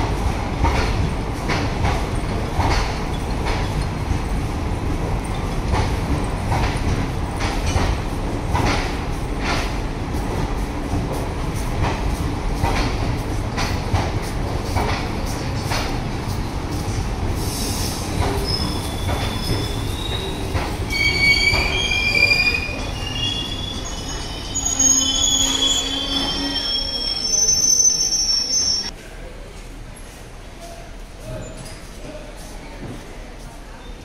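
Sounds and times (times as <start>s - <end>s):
train rumbling past: 0.0s - 33.4s
train brakes squealing: 17.4s - 28.9s.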